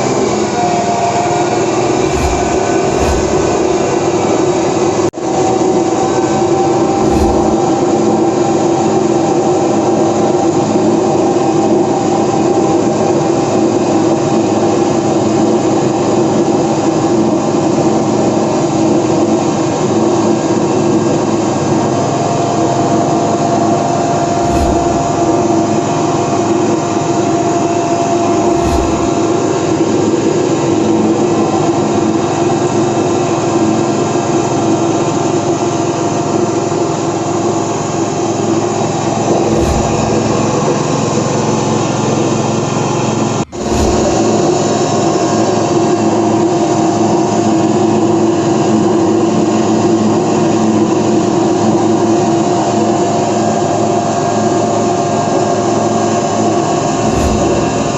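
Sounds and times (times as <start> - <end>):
high steady whine: 1.8 - 4.8, 6.4 - 8.1, 24.1 - 26.0, 28.3 - 29.5, 39.2 - 41.2, 43.5 - 45.0, 56.9 - 57.9
processing machine drone: 1.8 - 4.8, 6.5 - 8.1, 24.1 - 26.0, 28.3 - 29.4, 39.2 - 41.2, 43.5 - 45.0, 56.9 - 57.9.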